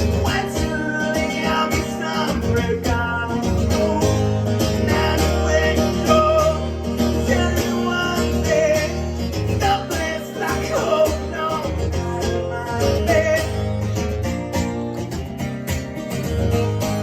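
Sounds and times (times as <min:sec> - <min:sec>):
bass: 0:00.0 - 0:17.0
drums: 0:00.0 - 0:17.0
guitars strumming: 0:00.0 - 0:17.0.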